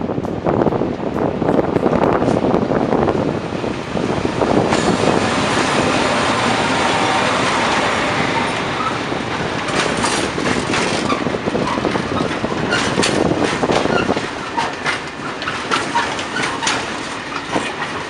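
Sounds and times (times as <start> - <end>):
train wheels rumbling on track: 0.0 - 18.0
wheels clicking over rail joints: 4.6 - 18.0.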